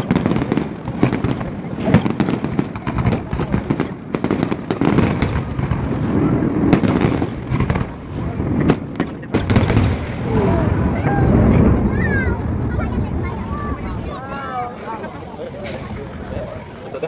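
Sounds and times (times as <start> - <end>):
fireworks bangs and crackles: 0.0 - 17.0
low rumble: 9.8 - 14.2.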